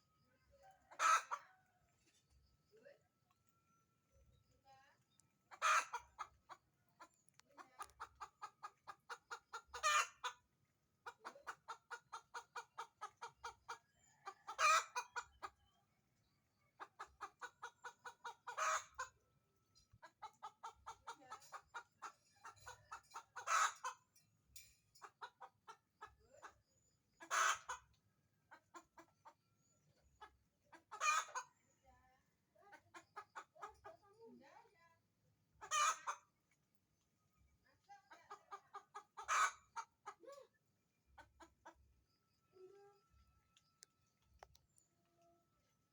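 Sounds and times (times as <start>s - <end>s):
hen clucking and squawking: 0.6s - 1.7s, 5.5s - 15.7s, 16.8s - 19.2s, 20.0s - 24.1s, 25.0s - 29.5s, 30.2s - 31.6s, 32.6s - 34.2s, 35.6s - 36.4s, 38.0s - 40.5s, 41.2s - 41.8s.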